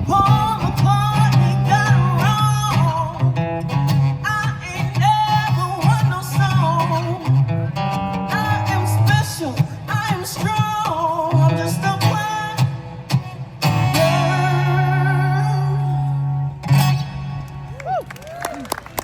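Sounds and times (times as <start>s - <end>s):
person singing with vibrato: 0.0s - 3.4s, 4.1s - 7.4s, 8.3s - 13.0s, 13.8s - 16.4s
guitar accompaniment: 0.0s - 19.0s.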